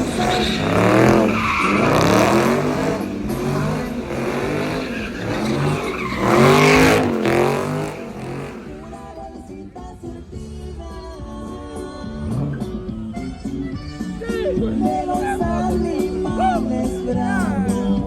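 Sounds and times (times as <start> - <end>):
tires squealing: 0.0 - 10.2
car engine revving: 0.0 - 15.0.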